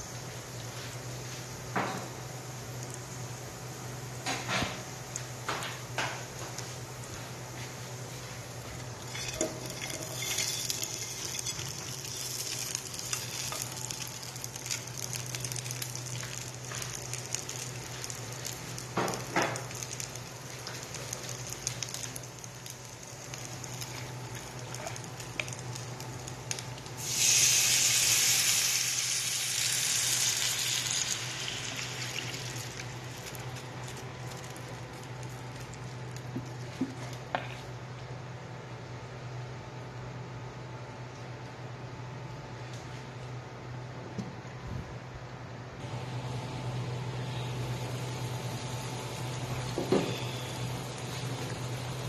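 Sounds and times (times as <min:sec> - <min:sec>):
food sizzling in hot oil: 0:09.0 - 0:35.8, 0:47.6 - 0:52.0.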